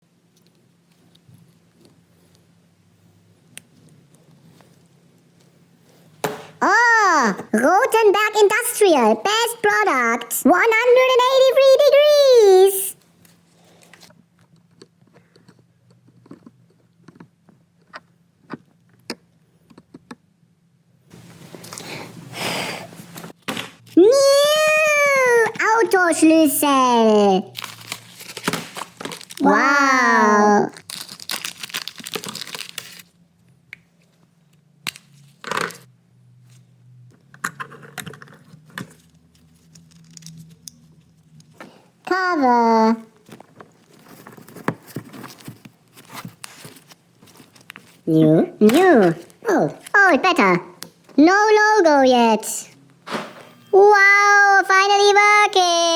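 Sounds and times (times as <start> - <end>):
small parts clicking and tapping: 14.4 - 20.2, 37.3 - 41.6.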